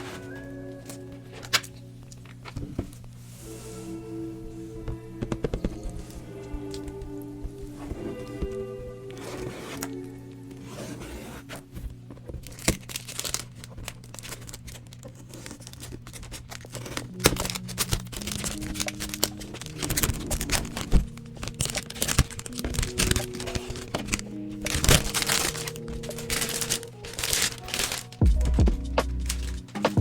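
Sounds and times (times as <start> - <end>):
background music with held notes: 0.0 - 13.0, 16.8 - 30.0
packaging crinkling and tearing: 9.4 - 29.9.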